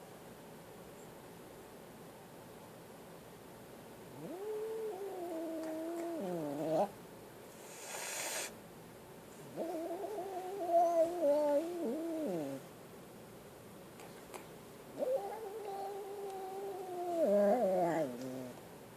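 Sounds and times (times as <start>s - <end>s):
kitten hissing: 7.6s - 8.6s.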